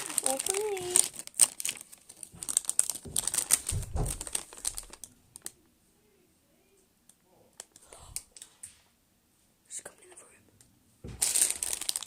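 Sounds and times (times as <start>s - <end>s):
plastic packaging crinkling: 0.0s - 5.6s, 11.1s - 12.0s
dull thump: 2.4s - 4.3s, 11.0s - 11.3s.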